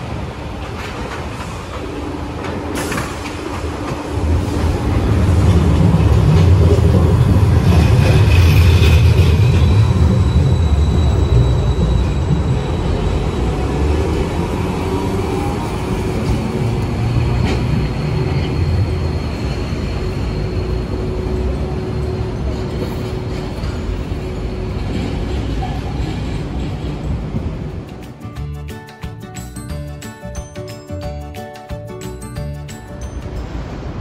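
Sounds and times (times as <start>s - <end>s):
streetcar rumbling past: 0.0s - 34.0s
high wheel squeal: 7.6s - 14.3s, 15.1s - 26.6s.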